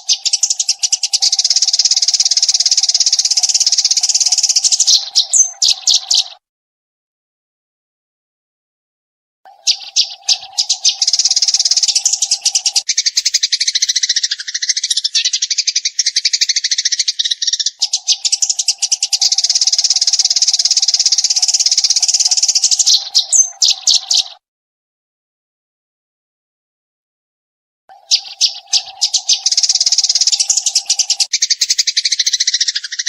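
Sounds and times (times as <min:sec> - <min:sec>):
sparrow chirping rapidly: 0:00.0 - 0:06.4, 0:09.5 - 0:24.4, 0:27.9 - 0:33.0.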